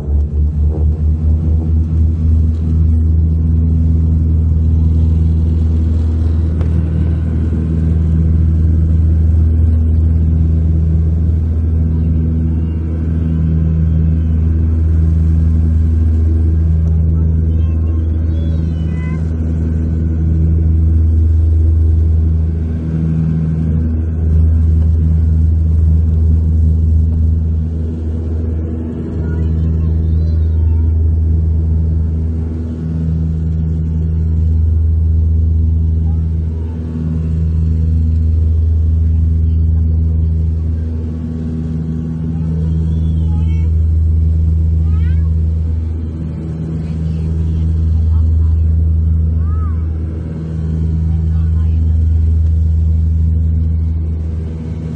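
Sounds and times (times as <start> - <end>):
propeller drone in cabin: 0.0 - 54.9.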